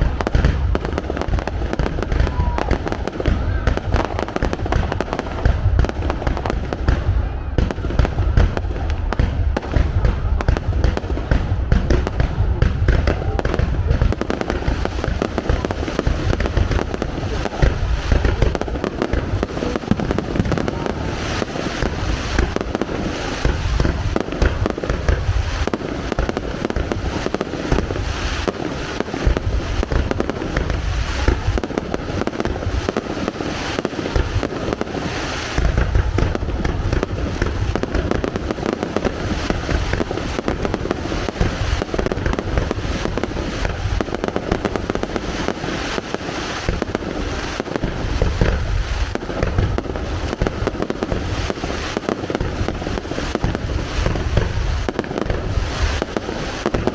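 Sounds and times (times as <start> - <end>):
firework booms: 0.0 - 56.9
firework crackling: 0.0 - 56.9.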